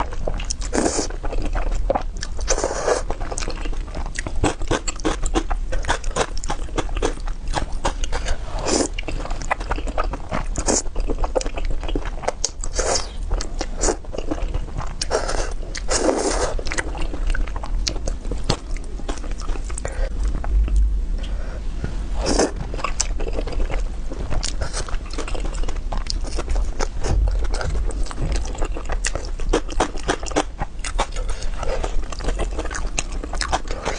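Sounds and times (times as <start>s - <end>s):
crunchy food chewing: 0.0s - 20.9s, 22.2s - 33.9s
steady low hum: 0.0s - 33.9s.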